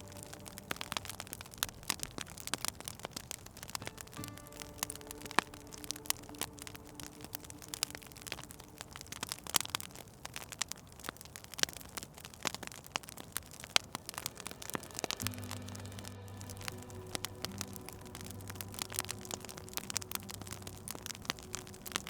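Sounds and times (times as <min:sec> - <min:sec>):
faint sustained tone: 0:00.0 - 0:02.2, 0:03.7 - 0:09.8, 0:13.8 - 0:22.0
low steady hum: 0:00.0 - 0:02.3, 0:13.8 - 0:22.0
wood fire crackling: 0:00.0 - 0:22.0.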